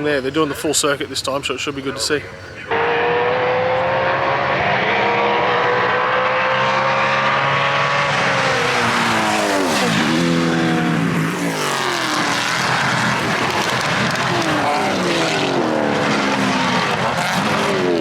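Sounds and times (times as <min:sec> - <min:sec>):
race car engine revving: 0:02.7 - 0:18.0.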